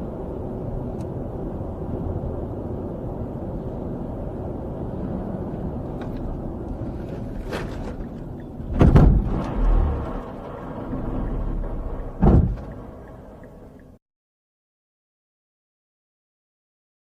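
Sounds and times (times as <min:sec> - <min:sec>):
vehicle low rumble: 0:00.0 - 0:14.0
loud heavy thump: 0:08.7 - 0:09.6, 0:12.2 - 0:12.7.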